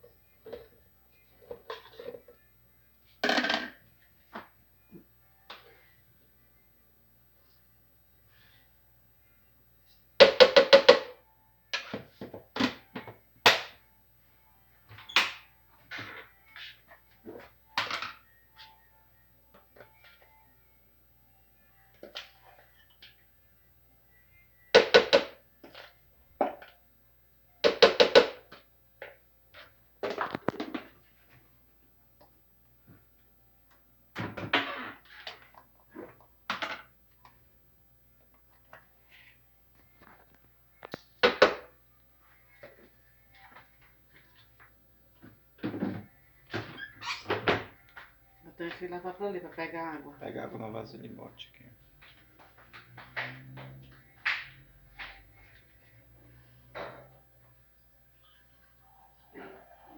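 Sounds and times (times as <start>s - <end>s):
objects knocking and clattering: 1.4s - 2.4s, 3.2s - 4.5s, 10.2s - 11.2s, 30.0s - 31.1s, 45.2s - 48.1s.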